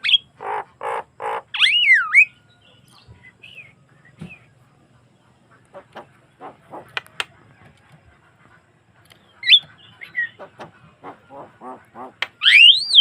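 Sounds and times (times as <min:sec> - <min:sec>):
bird chattering and clicking: 0:05.5 - 0:08.2, 0:09.0 - 0:12.7
loud whistled bird note: 0:12.4 - 0:13.0.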